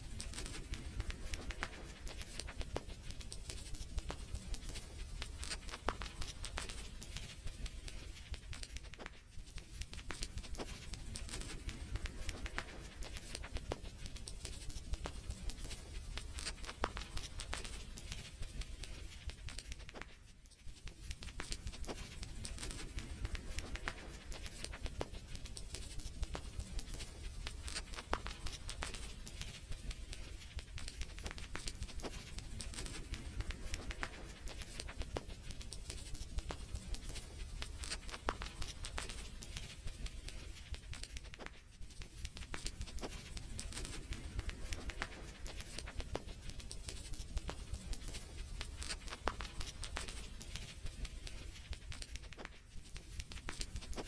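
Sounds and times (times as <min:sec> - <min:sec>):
wood fire crackling and popping: 0:21.1 - 0:54.0.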